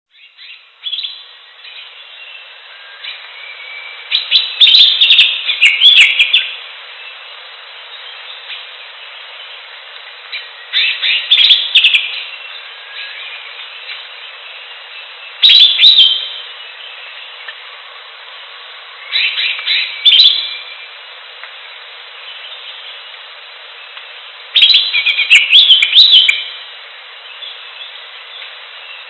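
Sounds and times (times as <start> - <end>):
bird chirps and whistles: 0.1 - 7.2, 10.3 - 17.2, 19.0 - 20.8, 24.6 - 26.6
steady background hiss: 0.1 - 29.0.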